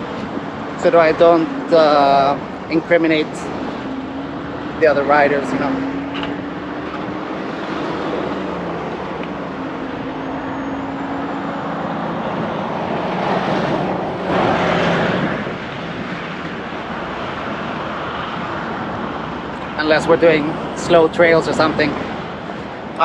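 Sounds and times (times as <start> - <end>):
traffic rushing: 0.0 - 23.0
vehicle passing: 0.0 - 23.0
wind noise: 0.0 - 23.0.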